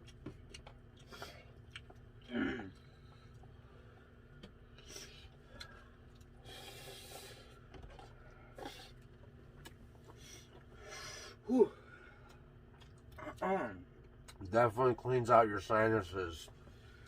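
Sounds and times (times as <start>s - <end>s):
person grunting: 2.3s - 2.7s, 11.5s - 11.8s.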